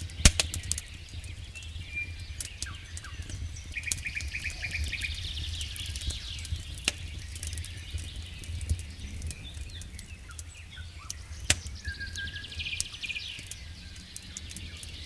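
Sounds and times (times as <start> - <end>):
birds singing: 0.0 - 15.0
campfire crackling: 0.0 - 15.0.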